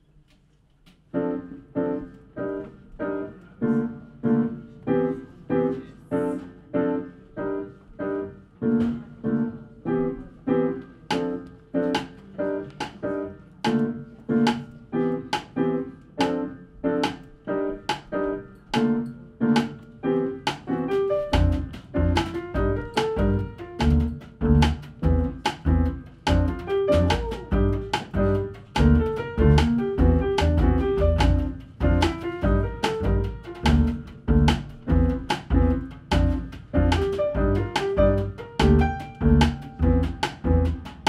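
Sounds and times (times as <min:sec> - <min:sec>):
piano playing jazz chords: 0:01.1 - 0:41.0
double bass low notes: 0:21.3 - 0:41.0.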